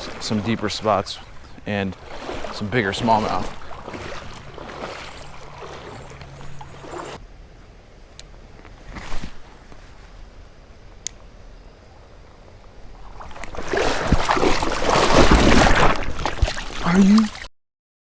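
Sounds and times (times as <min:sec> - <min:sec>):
splashing and thrashing in water: 0:00.0 - 0:07.2, 0:12.7 - 0:17.5
creek running water: 0:00.0 - 0:17.5.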